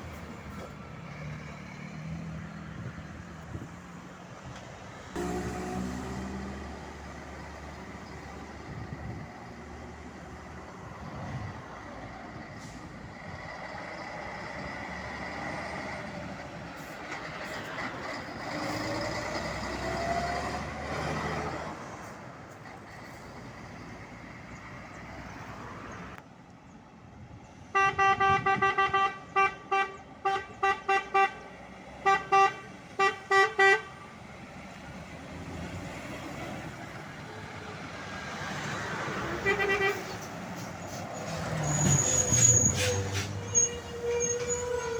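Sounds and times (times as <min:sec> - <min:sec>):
vehicle engine accelerating: 0:05.2 - 0:11.2
truck horn blasts: 0:27.7 - 0:34.2, 0:39.3 - 0:40.2.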